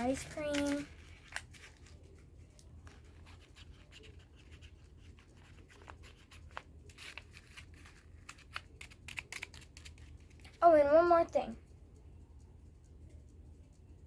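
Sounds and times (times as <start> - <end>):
paper scratching and tapping: 0.0 - 10.6
low room hum: 0.0 - 14.0.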